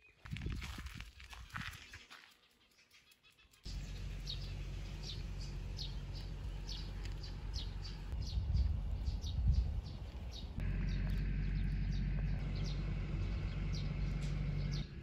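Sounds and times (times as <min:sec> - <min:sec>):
bird chirping: 0:01.7 - 0:15.0
steady low rumble: 0:03.7 - 0:15.0.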